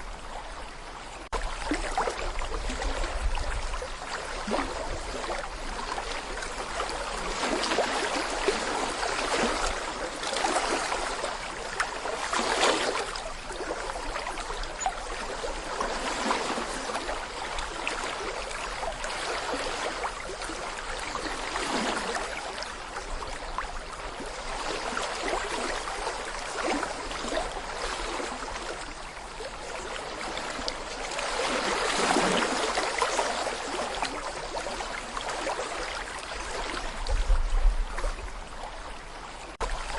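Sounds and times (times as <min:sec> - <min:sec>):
brook water burbling over stones: 0:00.0 - 0:39.9.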